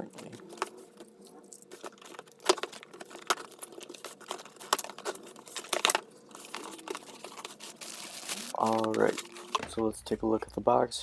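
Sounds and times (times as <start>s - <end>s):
packaging crinkling: 0.0s - 9.9s.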